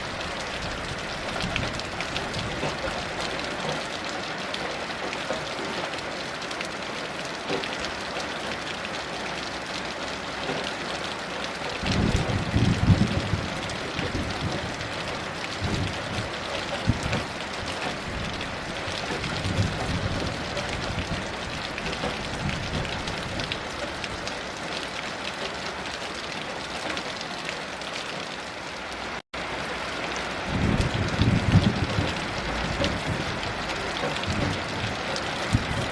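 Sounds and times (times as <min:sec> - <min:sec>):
heavy rain: 0:00.0 - 0:35.9
distant thunder rumbles: 0:11.8 - 0:24.2, 0:30.4 - 0:35.9.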